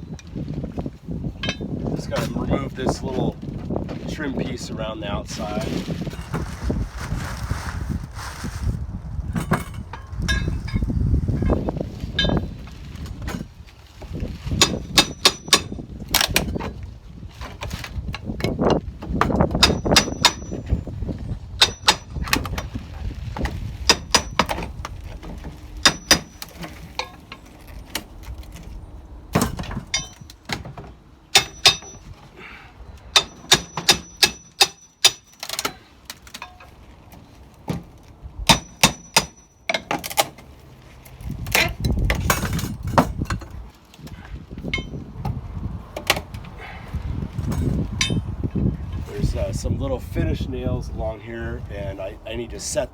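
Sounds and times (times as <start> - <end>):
knocking and scraping: 9.3 - 16.8
hammer striking steel pry bar: 14.6 - 15.8, 19.6 - 20.6, 21.6 - 22.2, 25.8 - 26.5, 31.3 - 32.1, 33.2 - 35.8, 38.5 - 40.0, 48.0 - 48.3.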